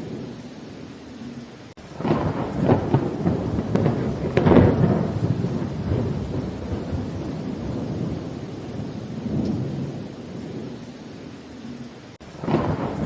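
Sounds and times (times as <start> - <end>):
steady rain: 0.0 - 13.0
thunder rumbling and cracking: 1.8 - 10.9, 11.6 - 13.0.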